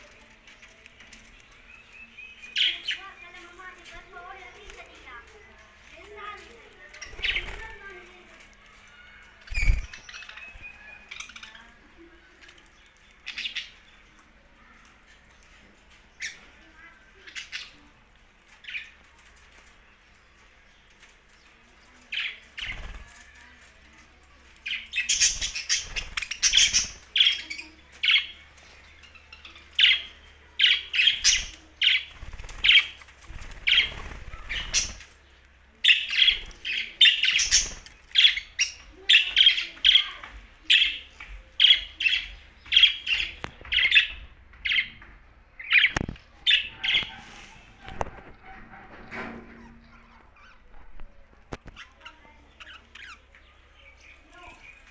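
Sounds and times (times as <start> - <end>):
budgerigars chirping: 24.7 - 35.0.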